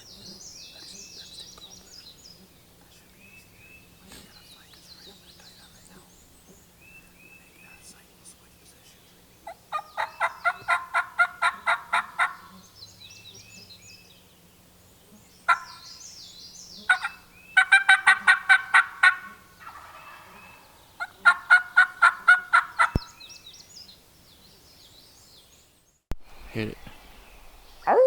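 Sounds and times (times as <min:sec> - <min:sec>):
songbirds chirping faintly: 0:00.0 - 0:28.0
turkey gobbling: 0:09.4 - 0:12.5, 0:15.5 - 0:15.8, 0:16.8 - 0:23.0.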